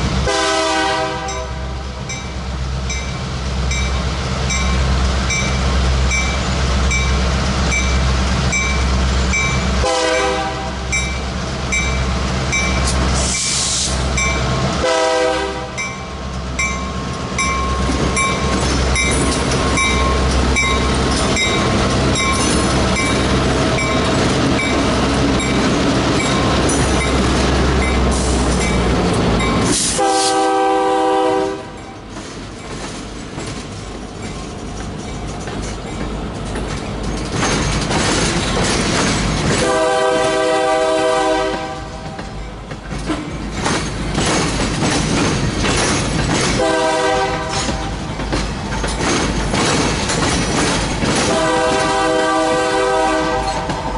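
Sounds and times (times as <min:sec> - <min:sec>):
diesel locomotive engines: 0:00.0 - 0:53.9
train horn blasts: 0:00.2 - 0:01.8, 0:09.8 - 0:11.0, 0:14.8 - 0:15.8, 0:29.8 - 0:31.9, 0:39.6 - 0:42.1, 0:46.6 - 0:47.9, 0:51.2 - 0:53.9.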